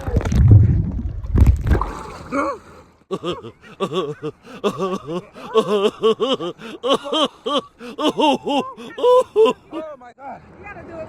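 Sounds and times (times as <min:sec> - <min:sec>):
person chuckling: 0:02.3 - 0:09.9.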